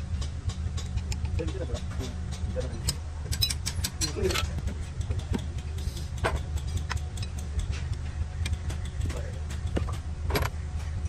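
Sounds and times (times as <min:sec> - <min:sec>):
engine idling: 0:00.0 - 0:11.0
sharp metallic clicks and knocks: 0:00.0 - 0:11.0.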